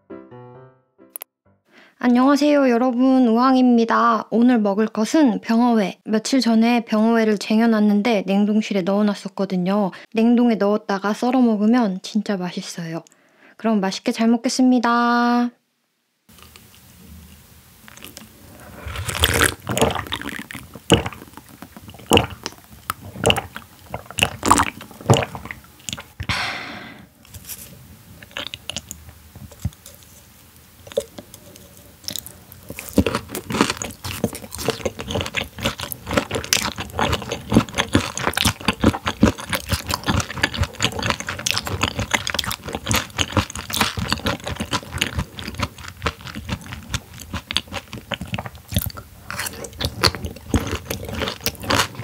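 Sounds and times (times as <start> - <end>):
wet crunchy chewing: 17.8 - 26.3, 28.2 - 52.0.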